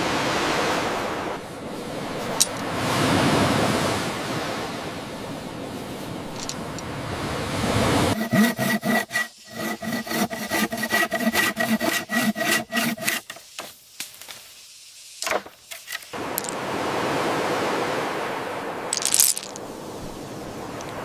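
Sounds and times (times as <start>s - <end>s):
sawing strokes on wood: 8.1s - 13.8s.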